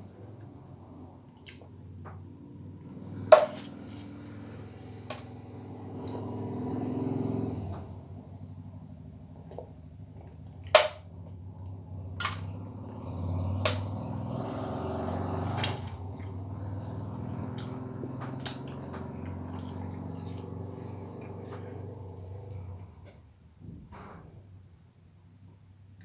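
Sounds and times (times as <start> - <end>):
wet chewing noises: 0.2 - 7.5, 8.8 - 23.1
steady low hum: 7.5 - 23.8.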